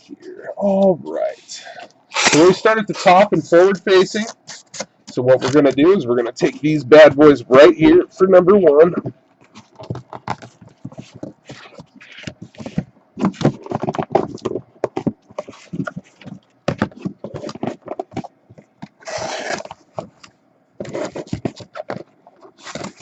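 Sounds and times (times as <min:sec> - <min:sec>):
cardboard boxes scraping and knocking: 0:09.5 - 0:20.2, 0:20.8 - 0:23.0.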